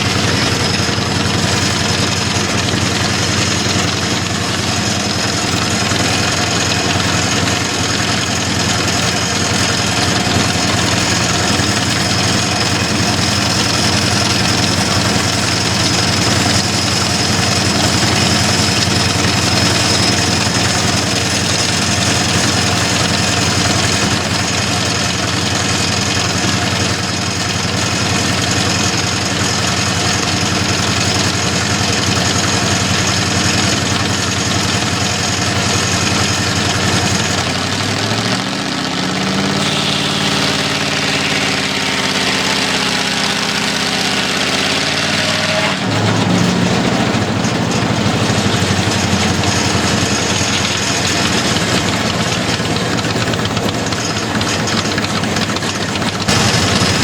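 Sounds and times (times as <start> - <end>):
sawmill engine running: 0.0 - 57.0
high hiss: 39.6 - 45.4.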